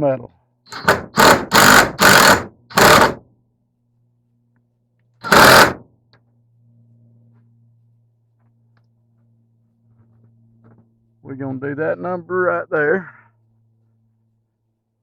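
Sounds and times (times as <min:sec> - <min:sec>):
power drill driving screws: 0:00.7 - 0:03.2, 0:05.2 - 0:05.8.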